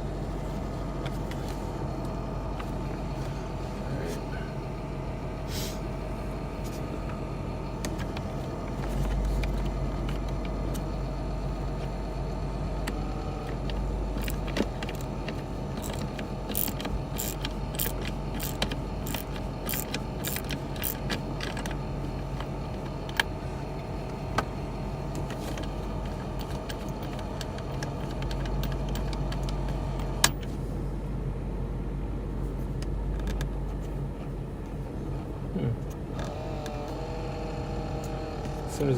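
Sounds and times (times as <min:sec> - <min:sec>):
car engine idling: 0:00.0 - 0:38.9
sharp metal clicks: 0:12.9 - 0:21.8
socket wrench clicking: 0:14.1 - 0:21.8.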